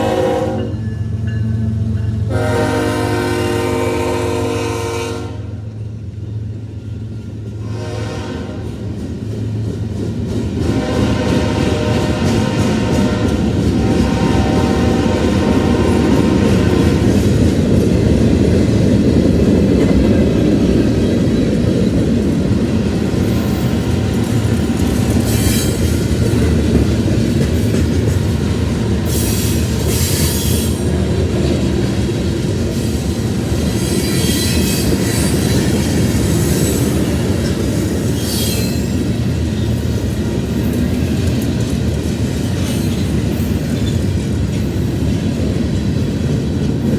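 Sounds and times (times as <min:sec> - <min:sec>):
freight train rumble and wheel clatter: 0:00.0 - 0:46.9
wheel flanges screeching: 0:23.1 - 0:26.4, 0:33.6 - 0:39.1.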